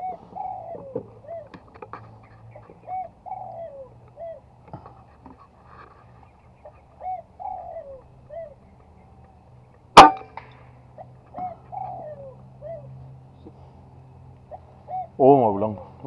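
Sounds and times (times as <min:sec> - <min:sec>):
bird calling in phrases: 0:00.0 - 0:05.0, 0:05.9 - 0:09.2, 0:10.9 - 0:13.7, 0:14.4 - 0:16.0.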